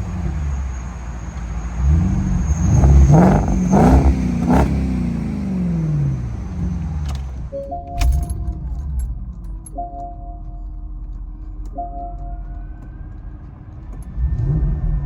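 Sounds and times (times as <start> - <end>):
car engine revving: 0.0 - 7.5, 12.8 - 15.0.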